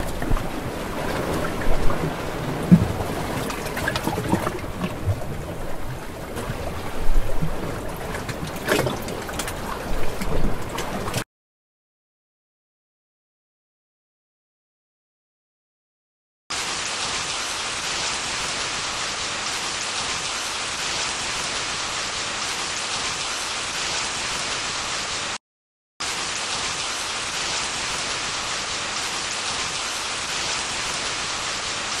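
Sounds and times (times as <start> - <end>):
heavy rain hissing: 16.5 - 25.4, 26.0 - 32.0.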